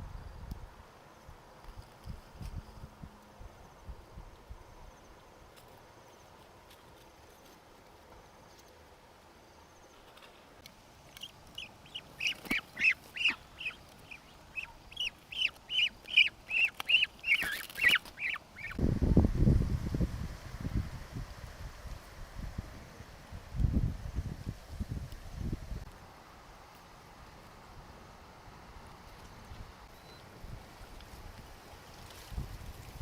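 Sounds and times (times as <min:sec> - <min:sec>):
ducks calling: 0:11.1 - 0:18.8.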